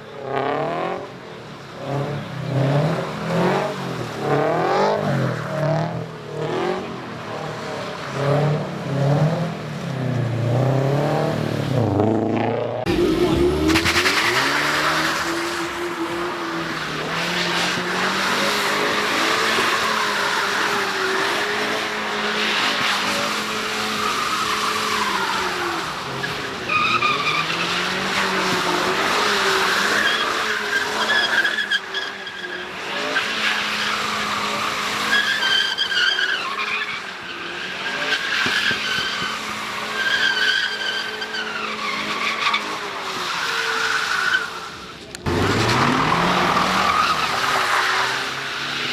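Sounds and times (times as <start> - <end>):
car engine revving: 1.9 - 31.0, 45.3 - 48.9.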